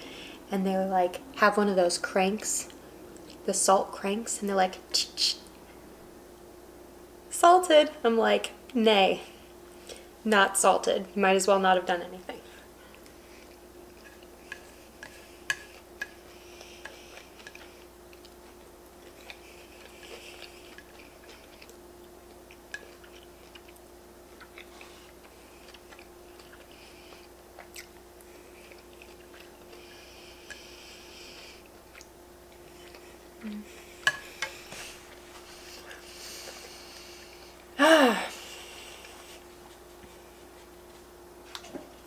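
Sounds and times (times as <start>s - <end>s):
faint hum: 0.0s - 42.0s
person chewing food: 12.8s - 37.7s.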